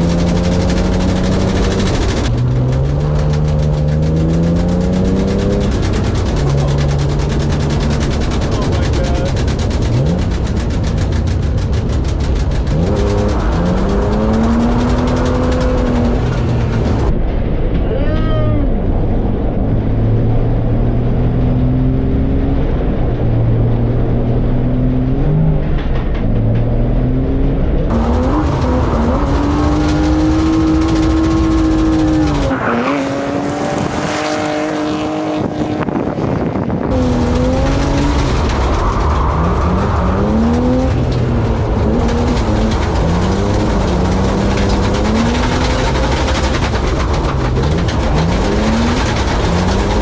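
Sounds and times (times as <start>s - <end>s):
car engine revving hard: 0.0s - 17.1s, 27.9s - 50.0s.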